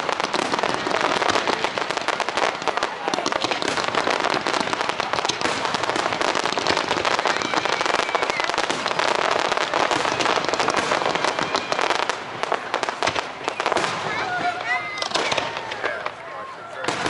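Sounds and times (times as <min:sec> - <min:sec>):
fireworks crackling and popping: 0:00.0 - 0:17.0.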